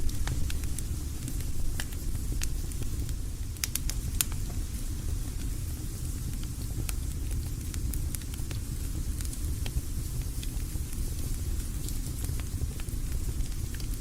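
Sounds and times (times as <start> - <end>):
campfire pops and snaps: 0.0 - 5.6, 11.6 - 14.0
low steady fire rumble: 0.0 - 14.0.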